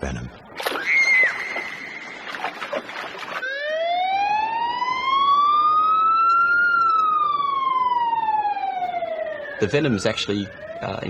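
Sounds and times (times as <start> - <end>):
emergency siren wailing: 3.4 - 11.0.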